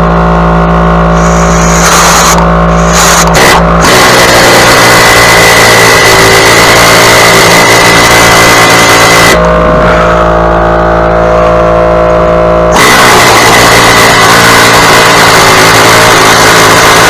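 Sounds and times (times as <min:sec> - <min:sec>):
small gasoline engine running: 0:00.0 - 0:17.0.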